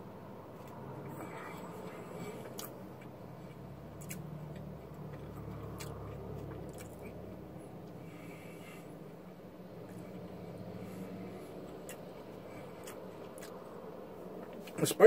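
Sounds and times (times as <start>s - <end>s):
person chewing food: 0.6s - 8.6s, 11.0s - 14.7s.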